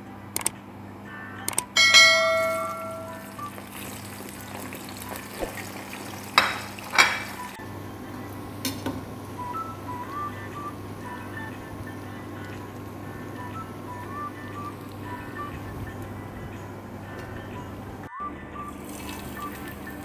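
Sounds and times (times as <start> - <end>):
click and ringing chime effect: 1.5 - 3.5
eggplant sizzling in hot oil: 3.2 - 7.6
plate knocking against pan: 6.4 - 7.4.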